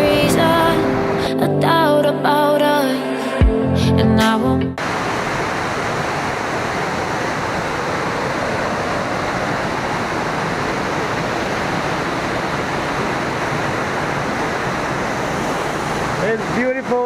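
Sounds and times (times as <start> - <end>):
waterfall rushing: 0.0 - 1.4, 4.8 - 17.0.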